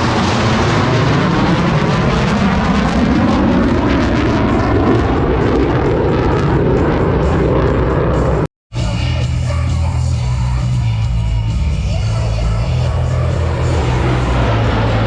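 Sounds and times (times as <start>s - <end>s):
propeller plane flying past: 0.0s - 8.4s, 12.1s - 15.0s.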